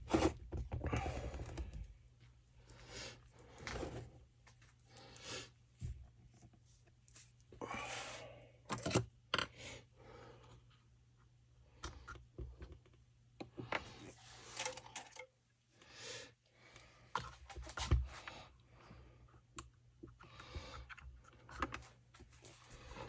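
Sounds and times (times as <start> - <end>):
small parts clicking and tapping: 6.8 - 7.5.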